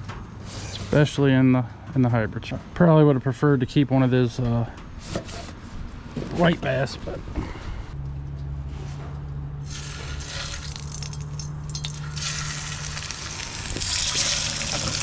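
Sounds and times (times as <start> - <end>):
fish frying in a pan: 9.7 - 15.0.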